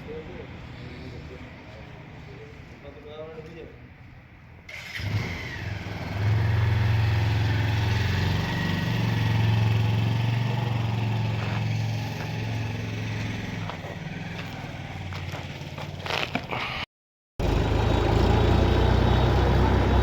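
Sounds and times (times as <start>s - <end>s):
vehicle engine running: 7.1s - 15.9s, 17.4s - 20.0s.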